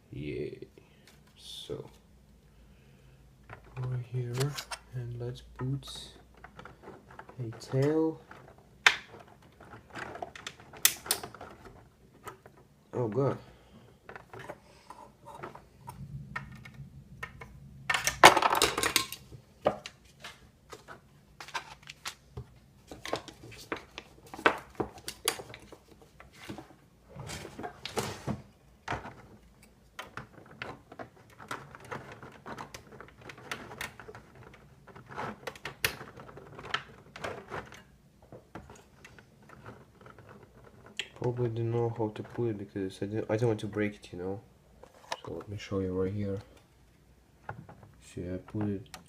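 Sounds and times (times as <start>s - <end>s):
small plastic parts clicking: 3.5s - 13.2s
rustling clatter: 5.6s - 43.4s.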